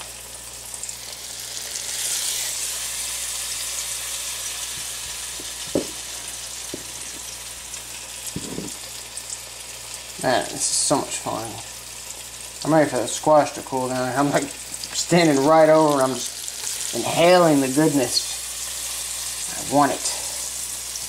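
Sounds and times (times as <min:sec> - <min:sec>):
zucchini slices sizzling in a pan: 0:00.0 - 0:21.0
soft knocks: 0:05.4 - 0:06.0.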